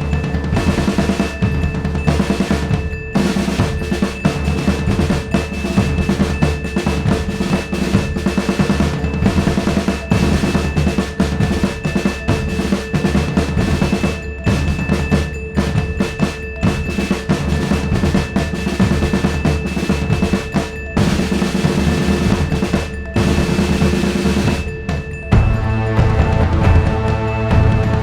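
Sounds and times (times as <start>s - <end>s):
fast dense drumming: 0.0s - 28.0s
steady held tones: 19.2s - 28.0s.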